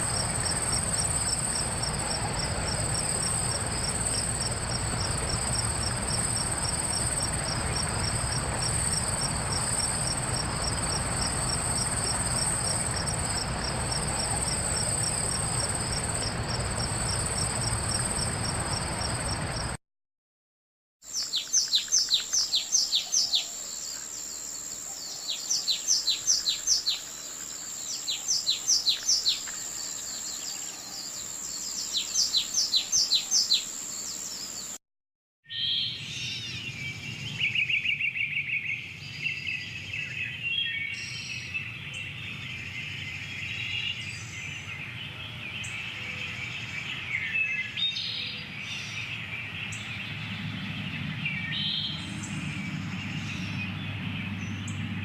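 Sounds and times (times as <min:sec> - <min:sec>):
high insect hum: 0:00.0 - 0:19.8, 0:21.1 - 0:34.8
insects chirping: 0:00.0 - 0:19.8, 0:21.1 - 0:34.8
low rumble: 0:00.0 - 0:19.8, 0:49.1 - 0:55.0
songbird whistling: 0:21.2 - 0:23.6, 0:25.0 - 0:27.0, 0:27.9 - 0:31.0, 0:31.6 - 0:33.7.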